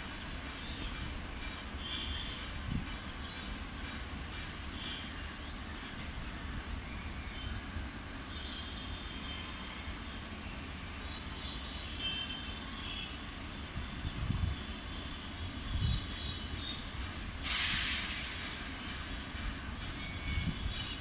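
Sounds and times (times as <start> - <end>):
train rumbling: 0.0 - 21.0
air hissing from train: 17.0 - 20.0.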